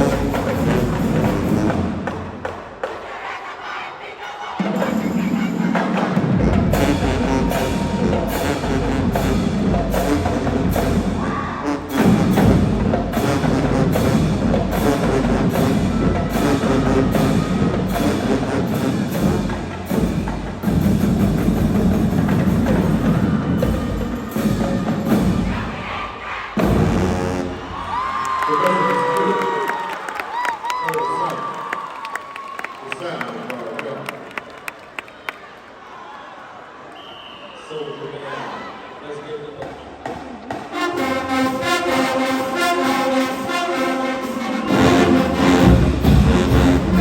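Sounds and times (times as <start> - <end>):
marching band playing: 0.0 - 28.2, 40.0 - 47.0.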